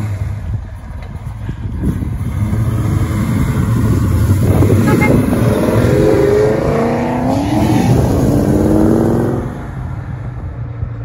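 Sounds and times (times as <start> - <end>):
car engine revving hard: 2.2 - 9.8.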